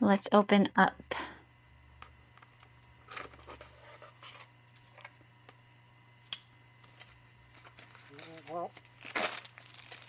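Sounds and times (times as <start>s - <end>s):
packaging rustling: 6.9s - 10.0s.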